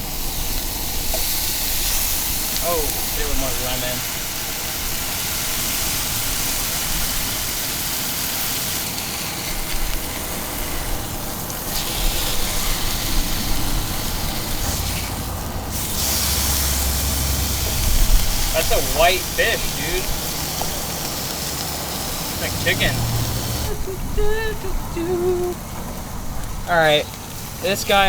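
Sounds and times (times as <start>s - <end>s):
fish sizzling in a pan: 0.0s - 28.0s
road traffic passing: 0.0s - 28.0s
low vehicle rumble: 8.9s - 28.0s.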